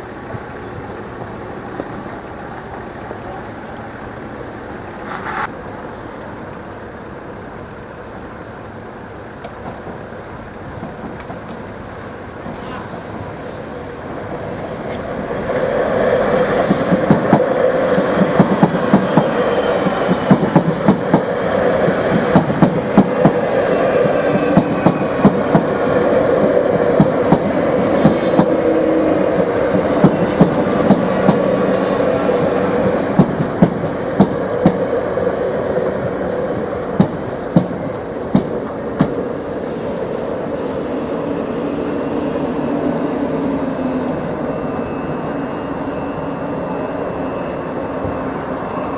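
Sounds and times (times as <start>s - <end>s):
train rail rumble: 0.0s - 48.9s
wheels clacking over rail joints: 9.2s - 13.0s, 14.1s - 39.2s
faint high whine: 39.4s - 48.9s.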